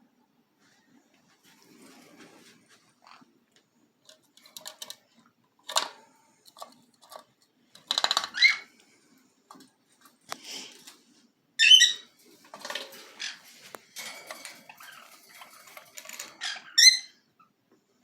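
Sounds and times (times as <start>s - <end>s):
parrots squawking: 11.6s - 12.1s, 14.6s - 17.3s.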